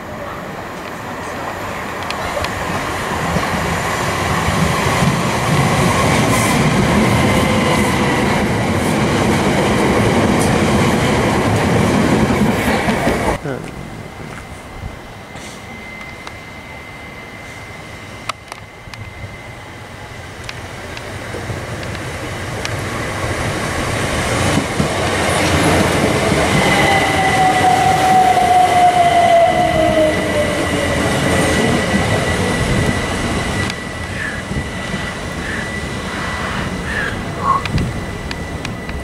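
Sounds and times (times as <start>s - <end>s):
train wheels rumbling on rail: 0.0s - 39.0s
train motor whine: 14.3s - 39.0s.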